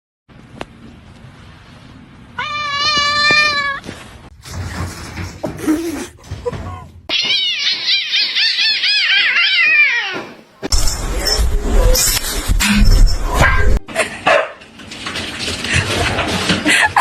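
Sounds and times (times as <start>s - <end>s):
cat yowling: 7.1s - 10.4s.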